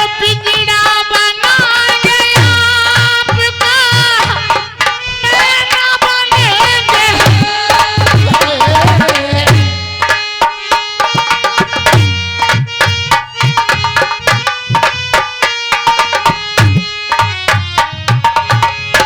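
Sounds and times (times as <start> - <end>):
person singing: 5.2 - 9.8.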